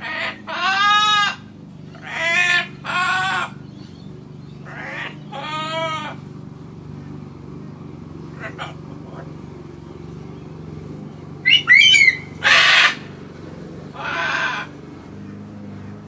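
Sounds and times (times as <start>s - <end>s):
macaw calling: 0.0s - 6.3s, 11.4s - 13.1s, 13.9s - 16.0s.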